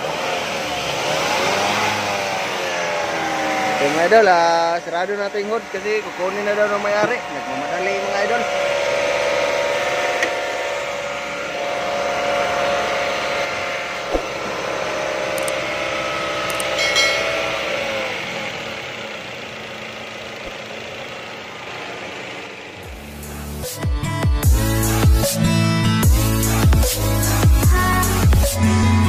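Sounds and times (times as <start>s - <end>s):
car engine running: 0.0s - 29.0s
thump: 14.1s - 14.4s
short metallic clink: 16.8s - 17.5s.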